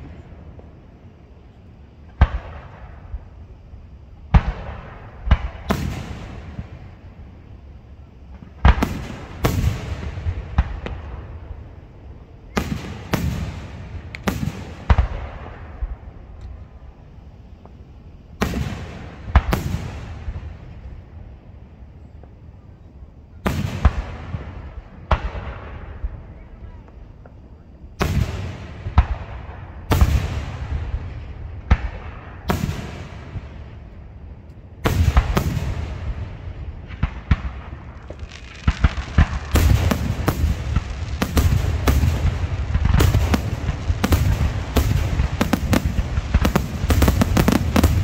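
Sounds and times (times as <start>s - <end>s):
fireworks booming: 0.0s - 21.4s, 23.4s - 34.2s, 34.8s - 48.0s.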